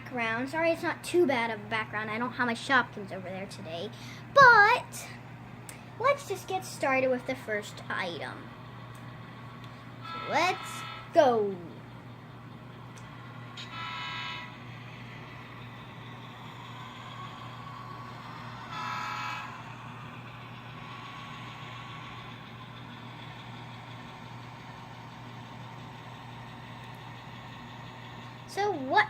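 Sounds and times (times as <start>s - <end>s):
steady low hum: 0.0s - 29.0s
short horn toots: 13.6s - 14.5s.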